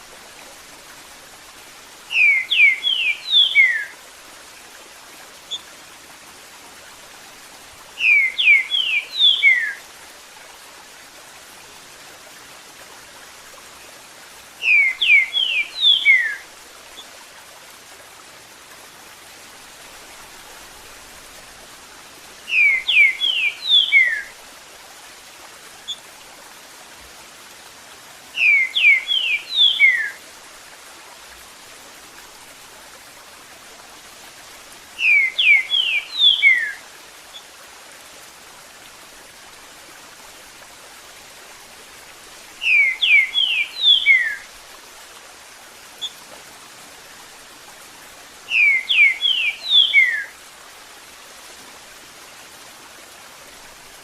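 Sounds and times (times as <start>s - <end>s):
running water hiss: 0.0s - 54.0s
bird whistled song: 2.1s - 4.0s, 8.0s - 9.8s, 14.6s - 16.4s, 22.5s - 24.3s, 28.4s - 30.2s, 35.0s - 36.8s, 42.6s - 44.4s, 48.5s - 50.3s.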